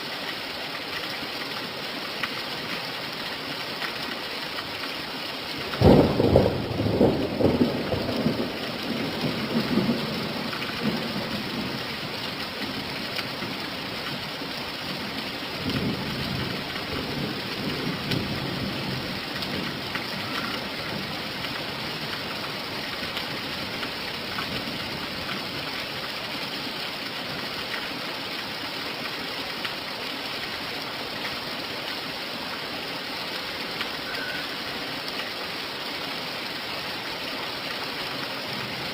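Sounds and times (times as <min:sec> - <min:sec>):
steady rain falling: 0:00.0 - 0:38.9
thunder rumbling: 0:05.8 - 0:12.1.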